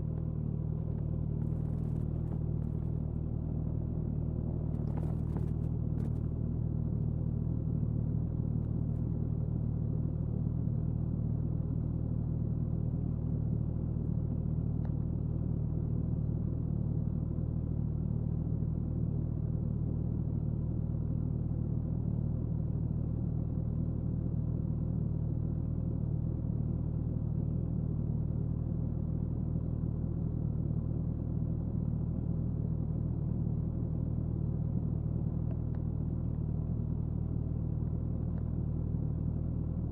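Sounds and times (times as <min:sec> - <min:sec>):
road and wind noise: 0:00.0 - 0:06.7.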